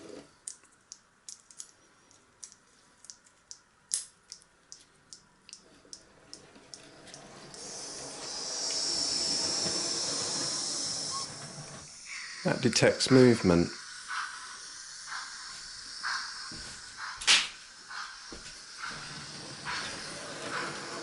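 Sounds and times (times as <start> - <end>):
steady steam hiss: 7.2 - 21.0.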